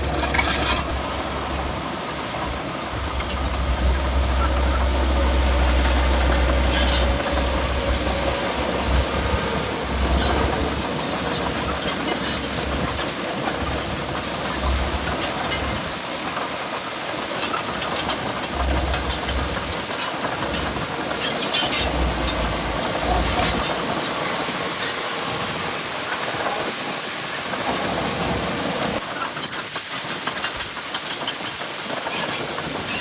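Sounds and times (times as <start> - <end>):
low rumbles: 0.0 - 16.0, 17.7 - 24.7
heavy machinery engine: 0.0 - 33.0.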